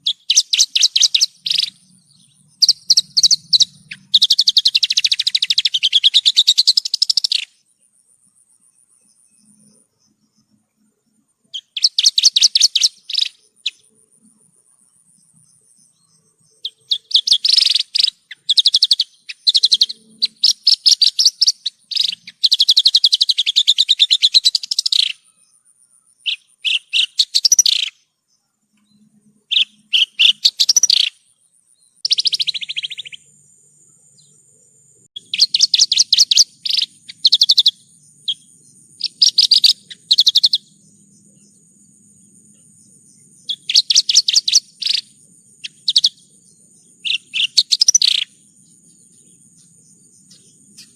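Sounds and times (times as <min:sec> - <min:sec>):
lark singing trilled phrases: 0:00.0 - 0:07.6, 0:11.5 - 0:14.0, 0:16.0 - 0:28.0, 0:29.4 - 0:31.3, 0:32.0 - 0:33.4, 0:35.2 - 0:41.5, 0:42.6 - 0:50.9.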